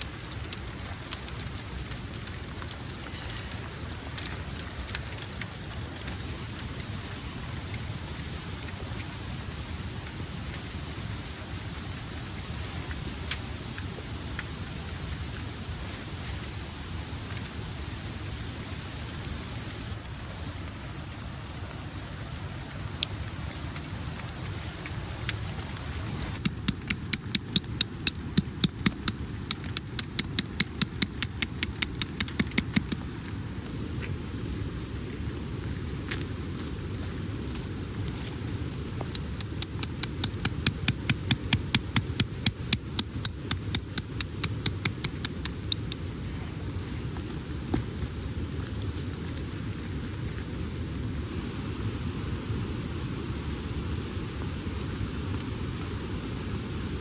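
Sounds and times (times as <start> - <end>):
heavy rain falling: 0.0 - 57.0
raindrops ticking on a surface: 0.0 - 57.0.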